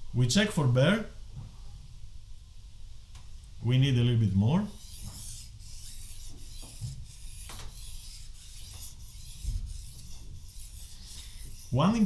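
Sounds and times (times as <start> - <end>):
knife scraping on whetstone: 4.2 - 12.0.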